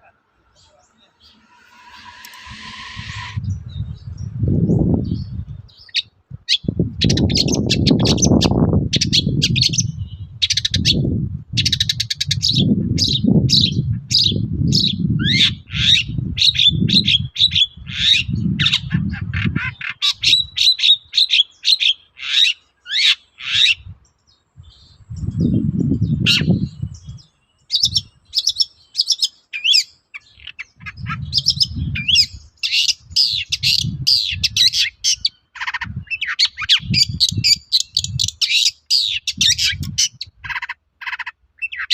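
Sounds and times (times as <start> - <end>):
bird singing chattering chirps: 0.5 - 11.0, 24.7 - 41.9
low rumbling noise: 0.6 - 5.7.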